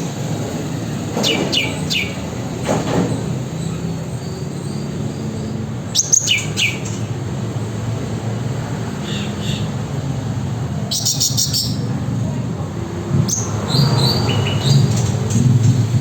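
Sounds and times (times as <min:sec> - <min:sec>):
bird whistles: 0:05.9 - 0:07.0, 0:10.9 - 0:11.8.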